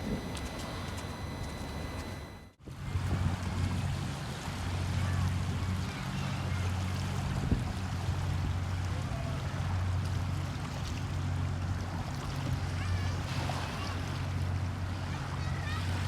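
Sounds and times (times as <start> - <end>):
low engine-like hum: 0.0 - 16.0.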